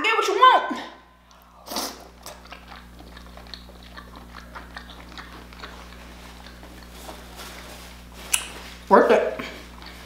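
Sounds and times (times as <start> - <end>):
wet chewing clicks and smacks: 1.2 - 7.2, 9.7 - 10.0.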